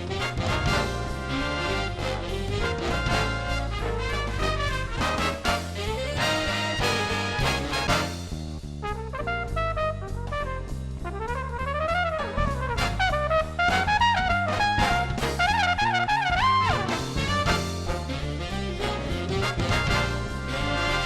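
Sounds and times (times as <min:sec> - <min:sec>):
swing jazz with trumpet: 0:00.0 - 0:21.0.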